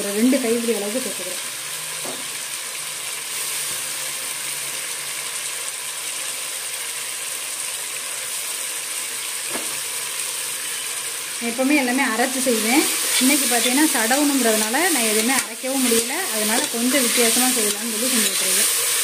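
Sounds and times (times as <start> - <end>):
masala sizzling in oil: 0.0 - 19.0.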